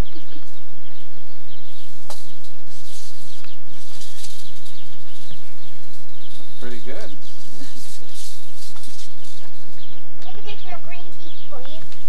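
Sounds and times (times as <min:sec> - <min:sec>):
birds chirping faintly: 0:00.0 - 0:12.0
steady hiss and low hum: 0:00.0 - 0:12.0.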